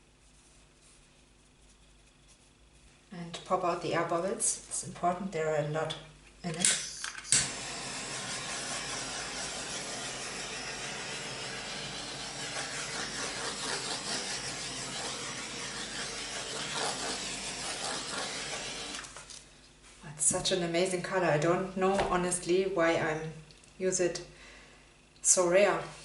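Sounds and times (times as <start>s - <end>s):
torch click: 6.6s - 7.6s
torch flame hissing: 7.4s - 19.2s.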